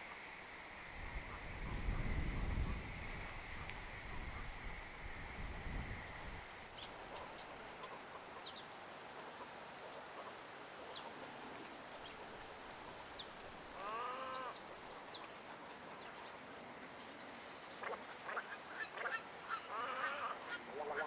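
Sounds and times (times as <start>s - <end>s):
larger bird call: 13.8s - 14.6s.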